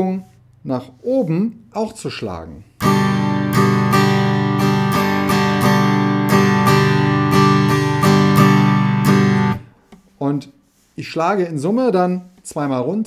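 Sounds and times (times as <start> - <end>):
acoustic guitar strumming: 2.8 - 9.8.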